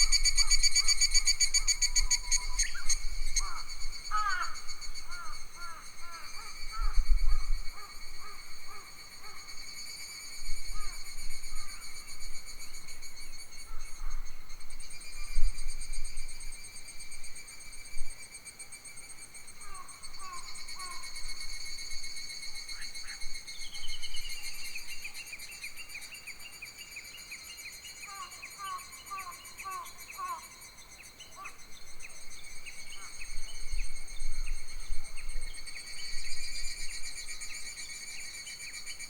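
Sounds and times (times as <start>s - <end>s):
insects trilling: 0.0s - 16.0s
wind rumbling on microphone: 6.3s - 8.6s, 32.9s - 37.4s.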